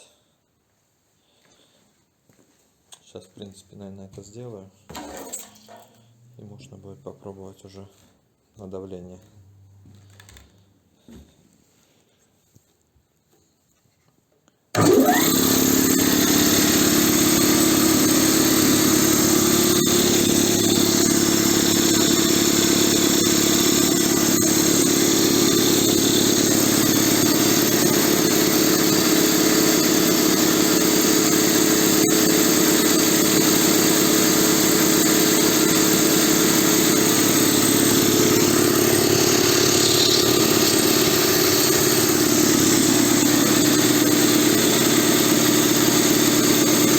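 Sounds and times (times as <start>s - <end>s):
piston air compressor running: 14.8s - 46.9s.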